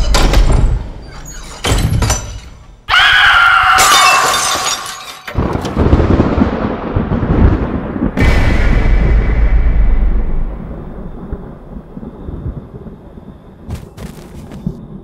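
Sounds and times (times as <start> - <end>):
loud shattering crash: 3.8 - 5.8
low rumble: 5.8 - 13.4.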